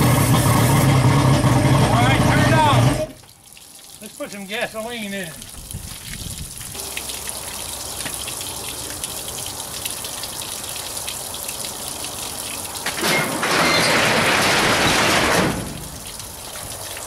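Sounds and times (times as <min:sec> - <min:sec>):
water splashing from a hose: 0:00.0 - 0:17.0.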